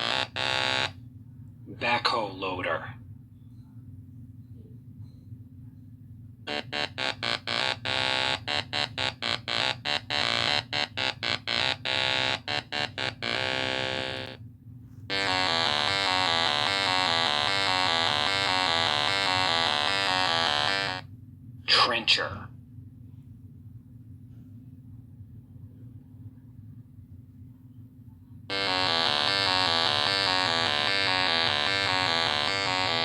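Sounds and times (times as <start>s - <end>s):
electronic synthesizer music: 6.5s - 14.4s, 15.1s - 21.0s, 28.5s - 33.0s
low steady drone: 28.5s - 33.0s.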